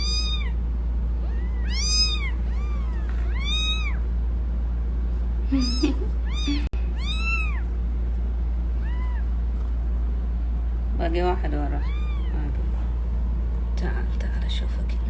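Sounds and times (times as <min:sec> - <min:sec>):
kittens mewing: 0:00.0 - 0:04.2, 0:05.4 - 0:07.9, 0:08.7 - 0:09.8, 0:11.7 - 0:12.7.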